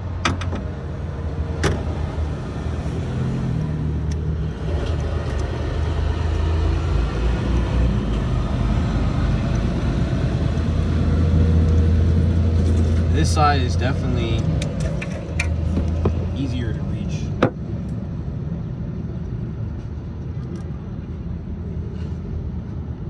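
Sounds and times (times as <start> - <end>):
engine running: 0.0 - 18.1.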